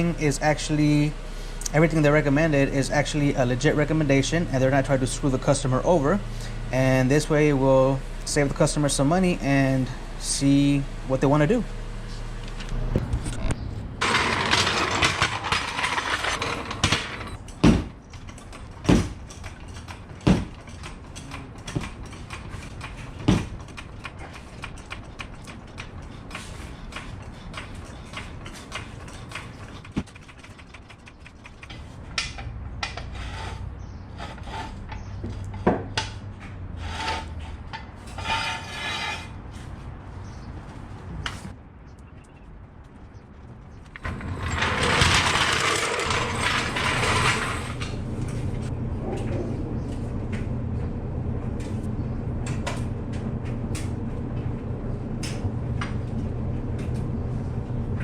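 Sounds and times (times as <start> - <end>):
sharp clicks and knocks: 12.5 - 33.1
metal tools rattling: 14.0 - 33.0, 44.0 - 48.0.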